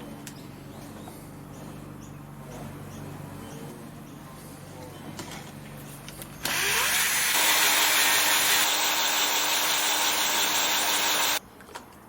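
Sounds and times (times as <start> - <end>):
hissing metal cutting noise: 6.4 - 11.4
power tool motor whining: 6.4 - 11.4.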